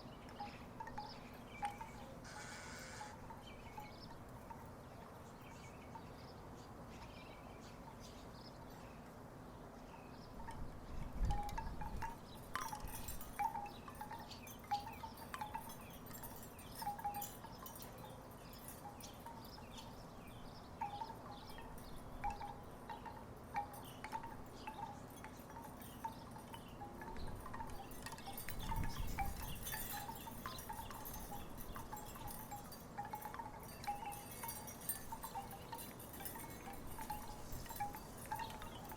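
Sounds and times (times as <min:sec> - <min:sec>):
wooden wind chimes clacking: 0:00.0 - 0:06.2, 0:10.0 - 0:38.9.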